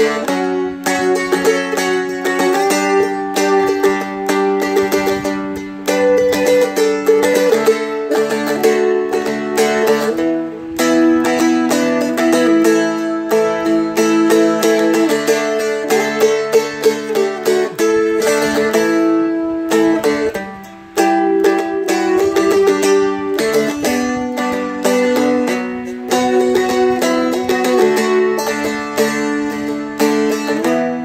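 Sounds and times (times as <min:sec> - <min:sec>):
dulcimer strummed and picked: 0:00.0 - 0:31.0.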